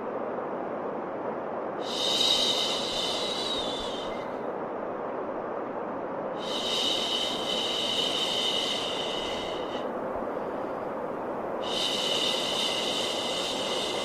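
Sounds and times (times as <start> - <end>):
white noise: 0.0 - 14.0.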